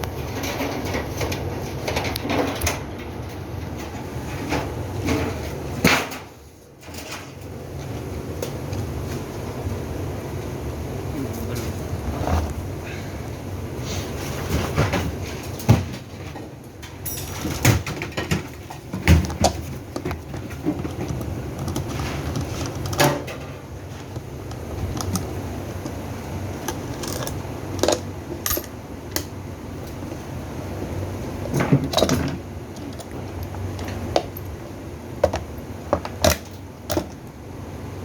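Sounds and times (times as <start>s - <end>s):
steady low hum: 0.0s - 38.0s
hard parts clattering: 14.4s - 25.9s.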